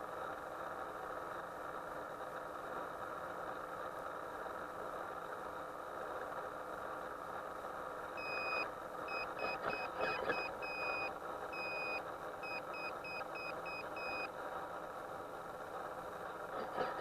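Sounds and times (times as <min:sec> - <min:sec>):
electronic beeps: 0:08.2 - 0:14.3.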